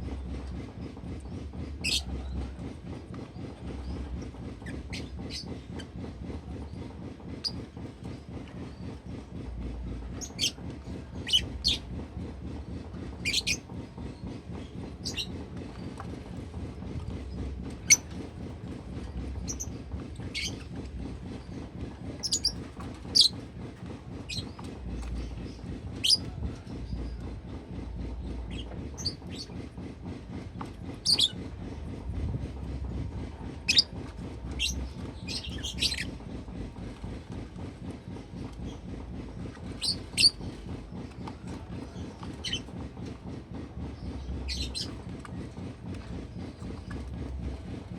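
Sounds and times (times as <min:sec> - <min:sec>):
low rumble: 0:00.0 - 0:47.9.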